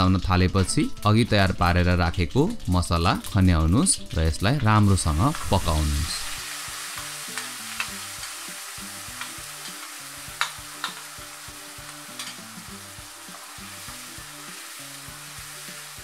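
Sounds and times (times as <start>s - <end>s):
onion paste sizzling in oil: 5.0s - 16.0s
spatula clicks and taps: 7.0s - 8.4s, 9.1s - 11.1s, 11.8s - 12.5s.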